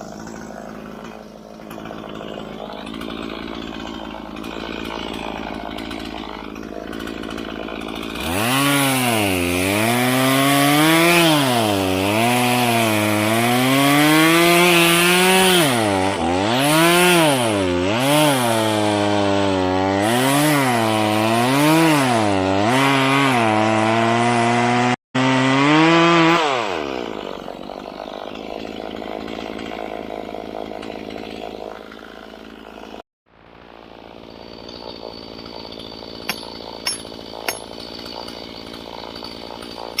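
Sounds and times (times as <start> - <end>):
chainsaw cutting wood: 0.0 - 40.0.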